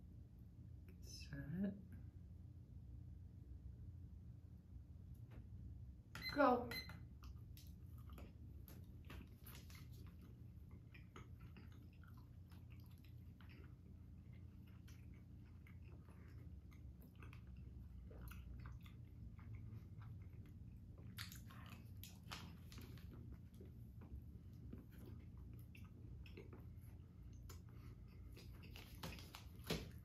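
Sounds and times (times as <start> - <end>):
room hum: 0.0 - 30.0
people chewing: 7.2 - 30.0.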